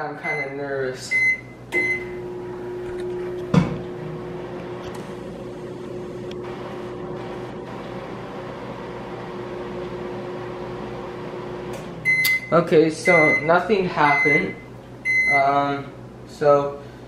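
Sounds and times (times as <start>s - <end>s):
microwave oven humming: 0.0s - 17.0s
thump: 3.5s - 3.8s.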